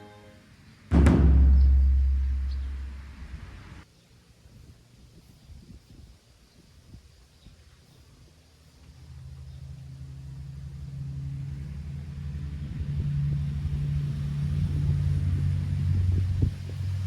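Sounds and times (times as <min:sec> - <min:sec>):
vehicle engine humming: 0:00.9 - 0:03.8, 0:08.8 - 0:17.0.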